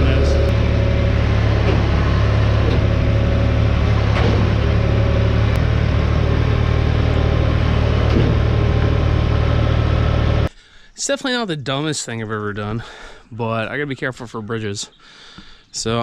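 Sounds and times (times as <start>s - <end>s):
diesel engine running under load: 0.0s - 10.5s.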